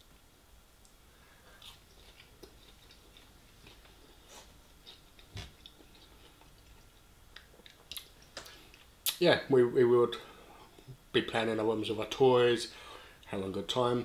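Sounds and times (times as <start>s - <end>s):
faint chewing: 0.8s - 9.2s.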